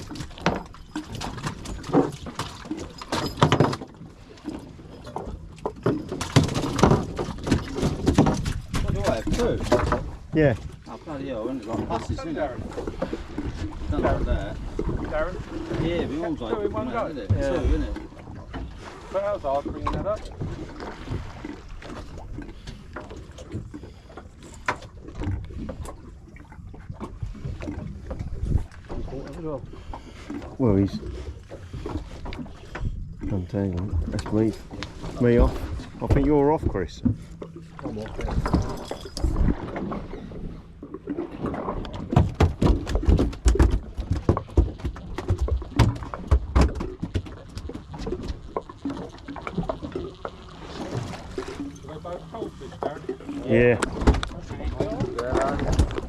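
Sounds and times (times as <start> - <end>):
boat engine rumble: 0.0 - 56.0
fish flapping and slapping on deck: 5.6 - 10.1, 41.9 - 49.0
tackle knocks and clicks: 41.8 - 48.7.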